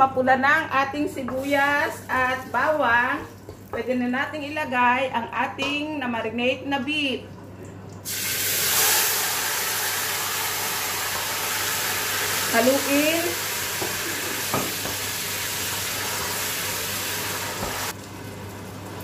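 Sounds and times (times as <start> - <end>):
meat sizzling in hot oil: 8.0 - 19.0.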